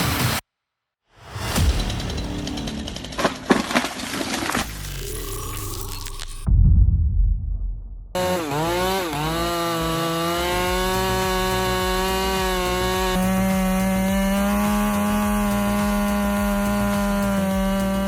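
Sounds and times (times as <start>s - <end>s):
chainsaw engine at high revs: 8.2s - 18.0s.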